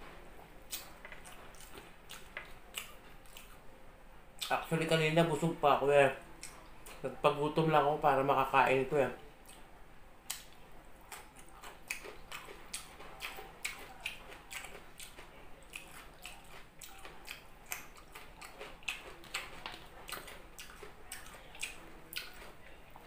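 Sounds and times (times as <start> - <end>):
person chewing food: 0.1 - 3.7, 6.3 - 7.1, 9.4 - 23.0.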